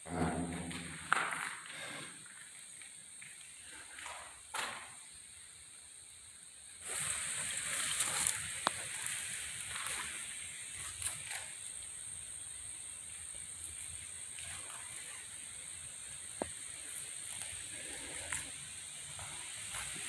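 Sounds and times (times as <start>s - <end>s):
footsteps crunching on rough ground: 0.1s - 4.8s, 6.9s - 11.5s.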